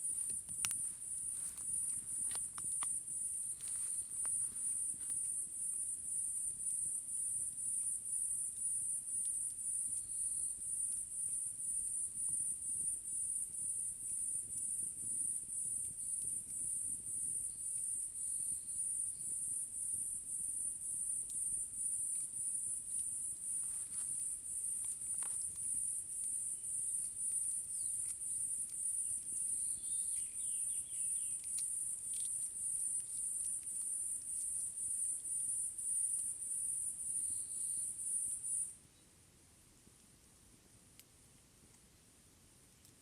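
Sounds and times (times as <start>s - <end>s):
crickets chirring: 0.0s - 38.8s.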